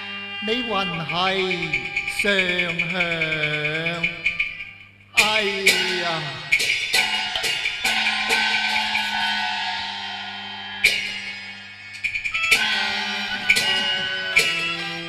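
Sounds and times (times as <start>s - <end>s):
held instrumental tones: 0.0s - 15.0s
sharp ringing percussion strikes: 0.0s - 15.0s.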